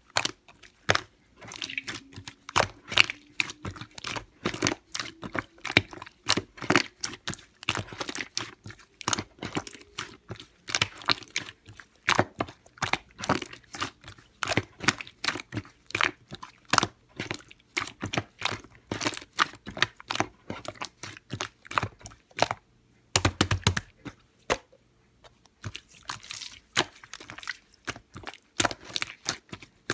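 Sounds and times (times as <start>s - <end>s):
slime squeezed by hand: 1.4s - 5.8s.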